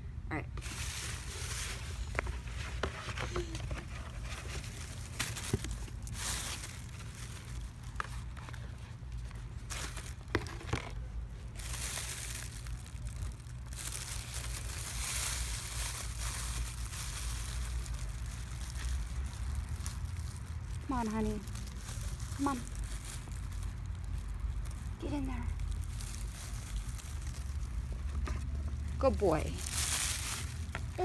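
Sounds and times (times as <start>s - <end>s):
box rustling and crinkling: 0.6s - 24.9s, 25.6s - 31.0s
steady low rumble: 11.0s - 31.0s.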